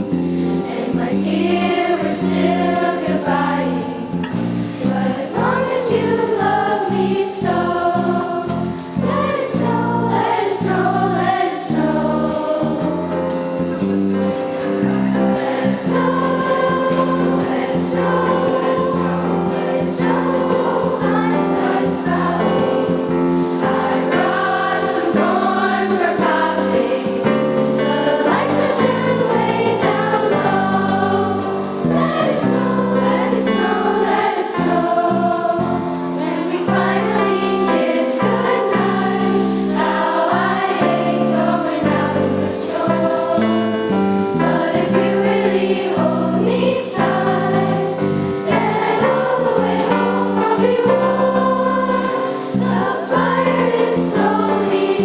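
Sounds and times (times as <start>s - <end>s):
choir singing: 0.0s - 55.0s
instrumental accompaniment: 0.0s - 55.0s.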